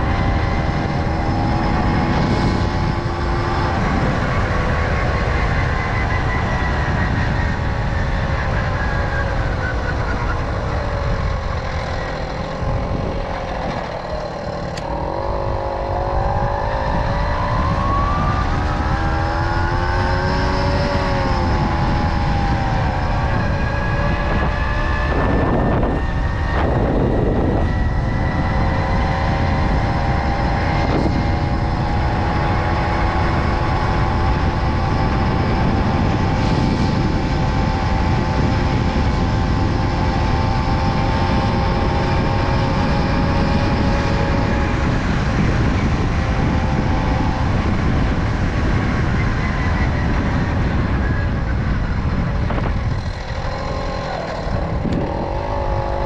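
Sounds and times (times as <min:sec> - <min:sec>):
wind buffeting microphone: 0:00.0 - 0:56.0
moped engine running: 0:07.2 - 0:56.0.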